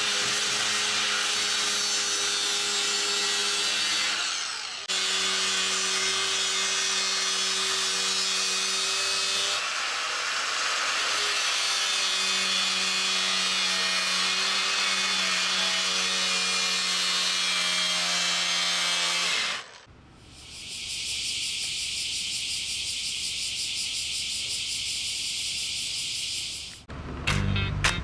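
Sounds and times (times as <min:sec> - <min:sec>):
power tool humming on wood: 0:00.0 - 0:19.9.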